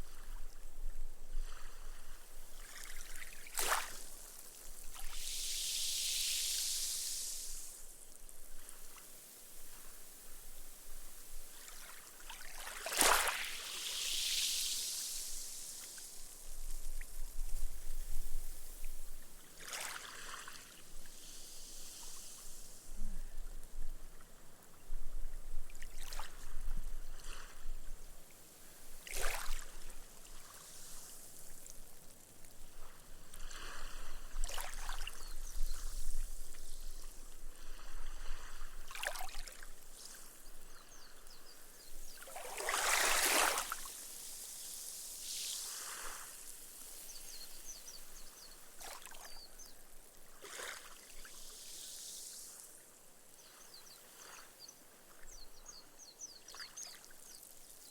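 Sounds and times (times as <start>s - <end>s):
small waves washing on beach: 0.0s - 24.8s, 25.6s - 57.9s
foam fizzing into sand: 3.0s - 10.5s, 11.1s - 22.9s, 42.0s - 49.4s.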